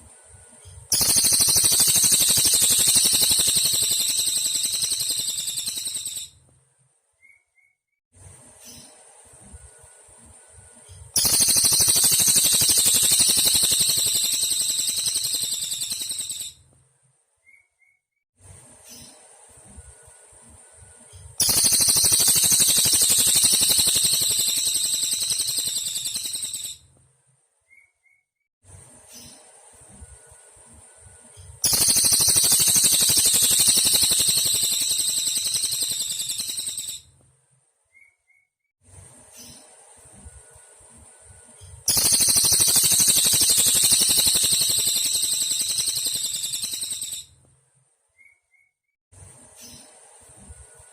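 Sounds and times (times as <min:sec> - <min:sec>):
faint bird chirps: 0:00.6 - 0:06.4, 0:07.2 - 0:07.9, 0:10.8 - 0:16.6, 0:17.4 - 0:18.2, 0:21.1 - 0:26.8, 0:27.6 - 0:28.4, 0:31.3 - 0:37.1, 0:37.9 - 0:38.6, 0:41.5 - 0:47.3, 0:48.1 - 0:48.9
bird high-pitched trill: 0:00.7 - 0:06.4, 0:11.2 - 0:16.6, 0:21.4 - 0:26.8, 0:31.6 - 0:37.1, 0:41.9 - 0:47.3
cicada buzzing: 0:00.9 - 0:06.2, 0:11.2 - 0:16.4, 0:21.4 - 0:26.7, 0:31.6 - 0:37.0, 0:41.9 - 0:47.2
crickets humming: 0:01.0 - 0:05.9, 0:11.2 - 0:16.1, 0:21.4 - 0:26.4, 0:31.7 - 0:36.6, 0:41.9 - 0:47.0.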